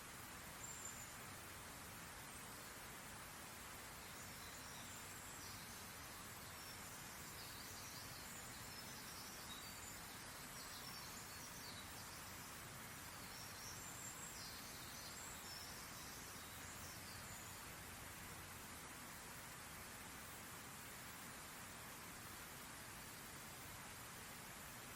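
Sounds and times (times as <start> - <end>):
steady hiss: 0.0 - 24.9
small birds chirping: 0.2 - 18.1.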